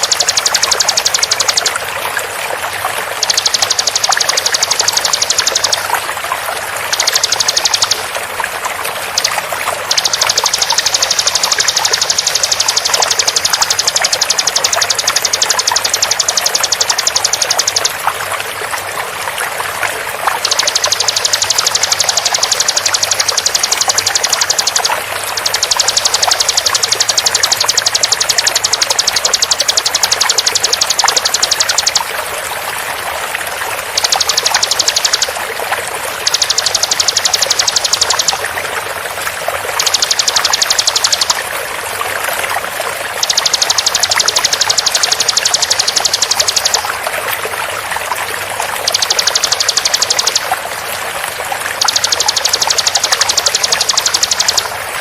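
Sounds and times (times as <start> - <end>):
bird rapid high song: 0.0 - 1.8, 3.1 - 6.0, 6.8 - 8.2, 9.1 - 18.1, 20.4 - 32.1, 33.8 - 35.4, 36.2 - 38.5, 39.8 - 41.4, 43.1 - 46.9, 48.8 - 50.5, 51.8 - 54.7
flowing water: 0.0 - 55.0.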